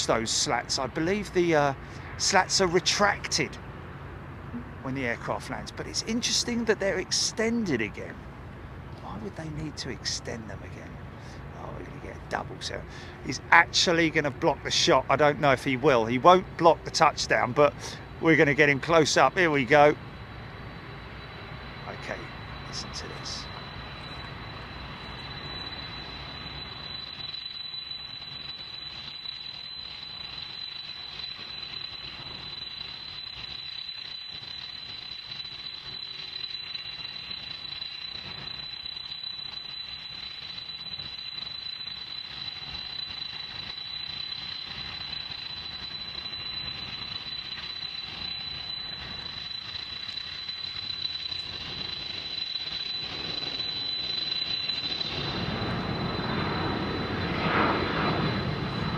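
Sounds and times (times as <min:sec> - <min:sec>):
jet engines whining: 0:16.8 - 0:58.9.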